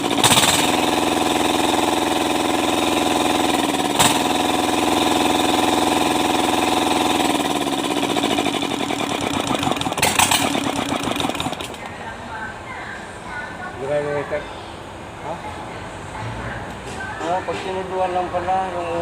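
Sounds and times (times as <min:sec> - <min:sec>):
diesel engine winding down: 0:00.0 - 0:11.9.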